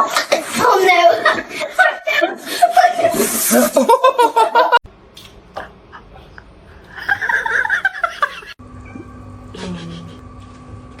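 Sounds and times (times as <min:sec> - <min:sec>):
people laughing loudly: 0:01.3 - 0:04.8, 0:06.9 - 0:08.6.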